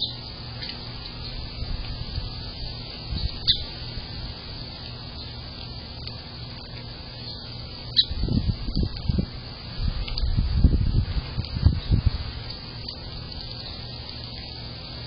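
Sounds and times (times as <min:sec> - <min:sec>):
faint bird chirps: 0:00.0 - 0:01.4, 0:03.1 - 0:03.7, 0:07.2 - 0:08.2
steady low hum: 0:00.0 - 0:15.0.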